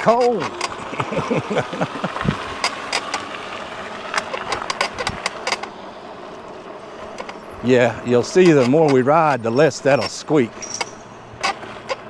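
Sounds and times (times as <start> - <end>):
clicks and rattles: 0.0 - 3.3, 4.1 - 5.8
electric bike road and motor noise: 0.0 - 12.0.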